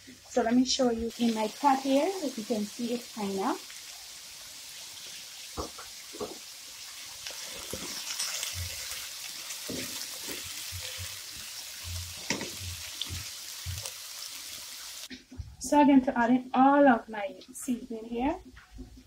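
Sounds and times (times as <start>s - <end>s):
vegetables sizzling in frying pan: 0.0s - 15.1s
spatula scraping and knocking pan: 7.3s - 13.9s.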